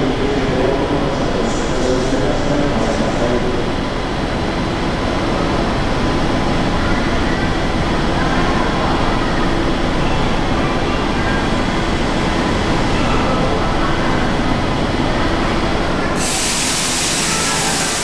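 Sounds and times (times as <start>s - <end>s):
train rumbling on rails: 0.0s - 18.0s
air brake hiss: 16.2s - 18.0s.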